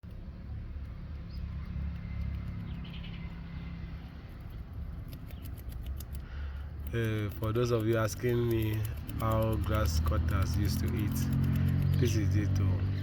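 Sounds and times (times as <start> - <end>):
animals crunching food: 4.2 - 12.9.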